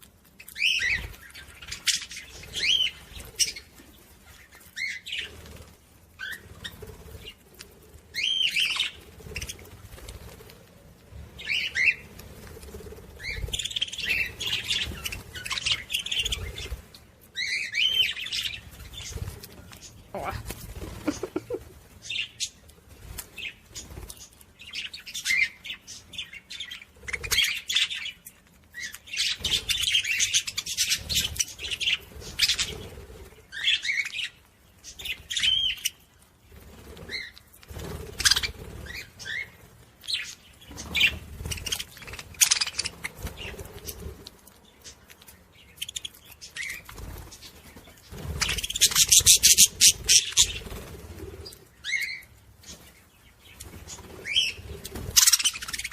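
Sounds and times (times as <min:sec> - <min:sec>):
parrots chirping: 0:00.4 - 0:05.4, 0:08.1 - 0:10.0, 0:11.4 - 0:22.6, 0:24.6 - 0:32.9, 0:38.1 - 0:50.7, 0:51.4 - 0:55.9
wings flapping: 0:00.6 - 0:25.5, 0:29.2 - 0:34.0, 0:34.9 - 0:45.2, 0:45.8 - 0:55.9.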